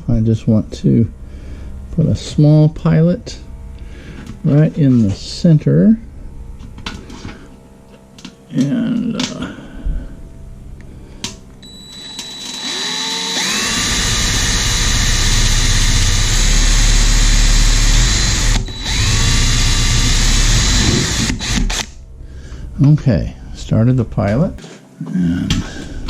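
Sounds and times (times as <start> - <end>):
power drill whining: 11.6 - 21.9.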